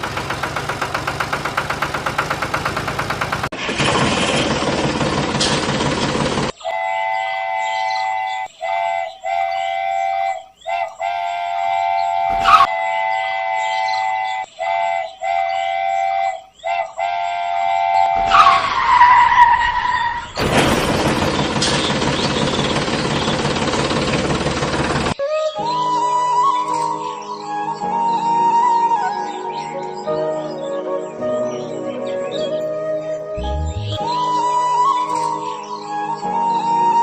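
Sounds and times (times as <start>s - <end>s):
train horn blasts: 6.6s - 18.6s.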